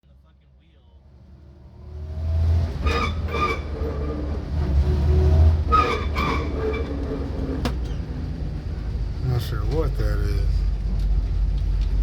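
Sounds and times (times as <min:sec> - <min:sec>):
car engine rumbling: 0:00.5 - 0:12.0
metallic grinding squeal: 0:02.7 - 0:08.0.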